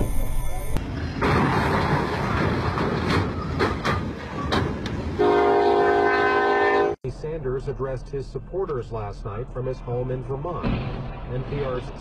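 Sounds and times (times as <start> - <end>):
freight train wheels clattering: 1.2 - 5.3
locomotive air horn blast: 5.2 - 7.0.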